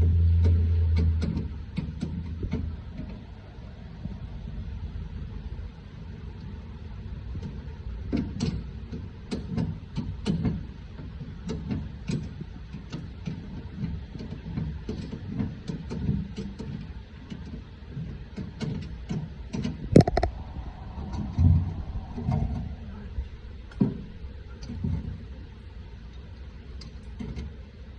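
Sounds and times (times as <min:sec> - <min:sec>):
steady low rumble: 0:20.0 - 0:24.4.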